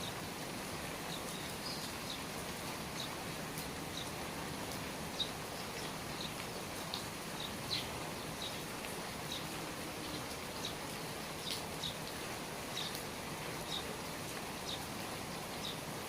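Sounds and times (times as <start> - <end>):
steady rain falling: 0.0 - 16.0
water dripping from eaves: 0.0 - 16.0.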